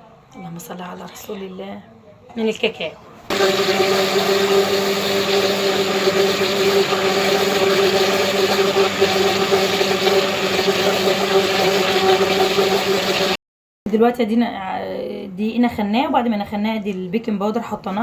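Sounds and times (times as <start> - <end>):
electric blender motor running: 3.3 - 13.4.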